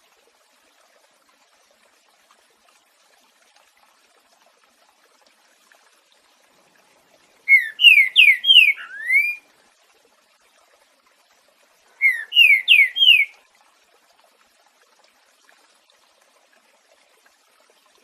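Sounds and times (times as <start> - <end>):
faint running water trickle: 0.0 - 18.0
bird singing whistled notes: 7.5 - 9.4, 12.0 - 13.3.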